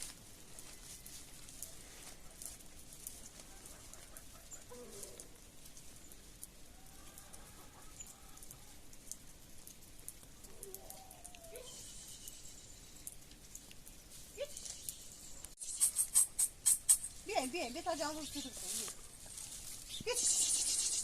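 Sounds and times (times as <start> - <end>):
faint livestock calls: 3.3 - 5.4, 10.4 - 13.1, 20.0 - 21.0.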